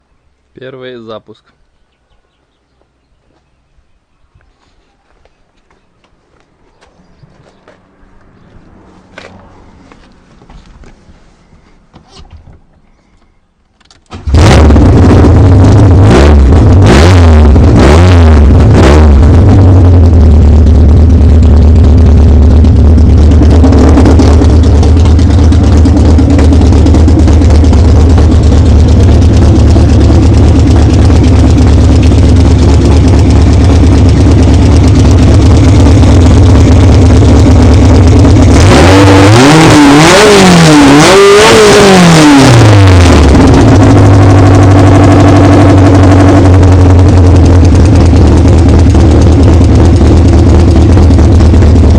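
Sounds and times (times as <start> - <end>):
car engine starting and revving: 14.0 - 51.9.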